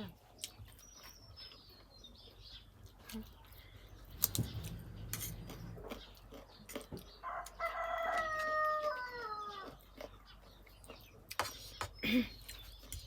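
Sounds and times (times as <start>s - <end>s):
rooster crowing: 7.2s - 9.8s.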